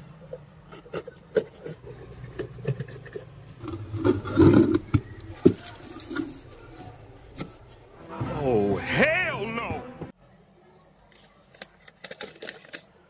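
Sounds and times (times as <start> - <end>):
hard objects clicking and scraping: 0.0 - 7.9.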